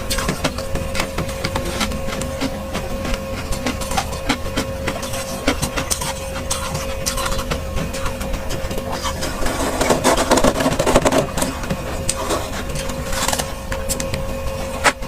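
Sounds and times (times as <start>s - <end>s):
frost crunching and crackling: 0.0s - 15.0s
steady hum: 0.0s - 15.0s.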